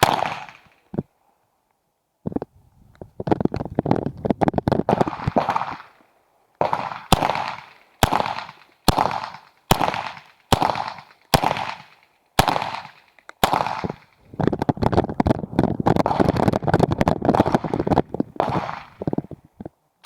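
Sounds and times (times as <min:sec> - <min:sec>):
pistol shots echoing: 0:00.0 - 0:00.8, 0:04.9 - 0:06.0, 0:06.6 - 0:14.2, 0:17.3 - 0:19.1.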